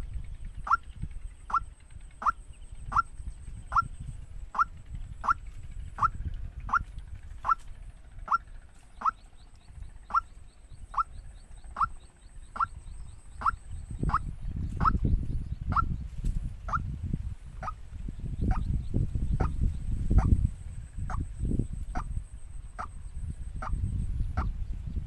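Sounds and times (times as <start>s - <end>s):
bird giving sharp rising calls: 0.0s - 9.4s, 10.0s - 15.0s
low rumble: 0.0s - 25.0s.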